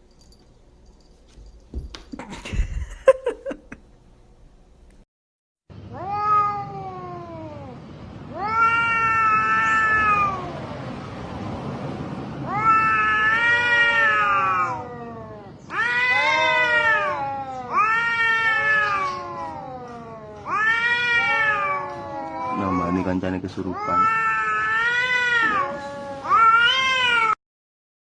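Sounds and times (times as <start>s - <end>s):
cat yowling: 5.9s - 10.8s, 12.4s - 27.4s.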